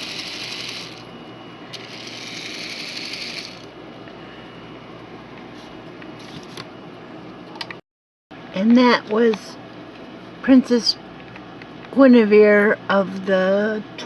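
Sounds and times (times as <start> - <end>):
toy motor and gears whirring: 0.0 - 1.1, 1.7 - 3.7.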